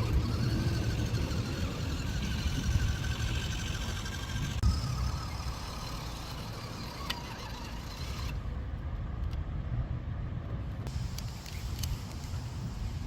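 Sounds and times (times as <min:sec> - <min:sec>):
toy truck motor whine: 0:00.0 - 0:08.5.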